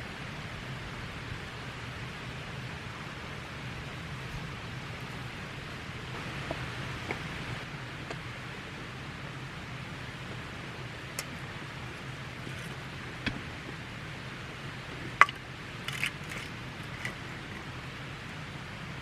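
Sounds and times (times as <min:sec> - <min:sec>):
campfire hissing: 0:00.0 - 0:07.7
fire crackles and pops: 0:00.0 - 0:07.7.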